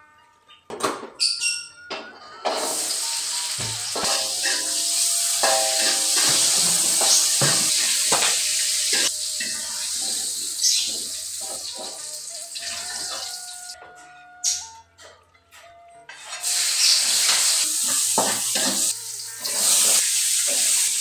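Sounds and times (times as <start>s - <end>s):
metal spatula scraping a pan: 2.5s - 12.0s, 14.1s - 20.9s
shallots sizzling in hot oil: 2.5s - 13.8s, 16.4s - 21.0s.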